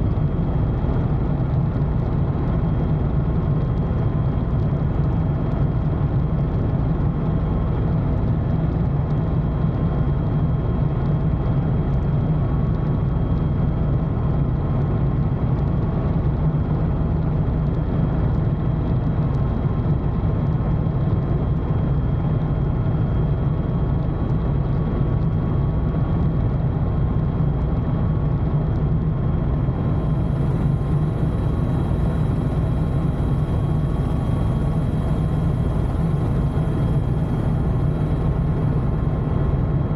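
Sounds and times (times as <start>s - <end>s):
faint steady whining tones: 0.0s - 39.9s
helicopter engine and rotor din: 28.6s - 39.9s
faint high whine: 29.2s - 39.9s.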